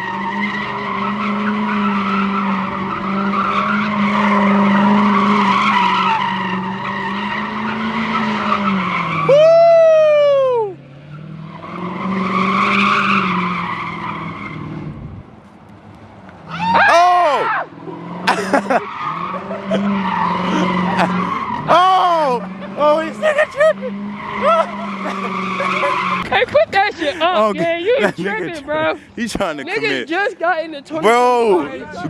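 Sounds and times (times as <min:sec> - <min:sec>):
loud tyre screech: 0:00.0 - 0:15.1, 0:16.4 - 0:28.0
car engine running: 0:17.7 - 0:31.4.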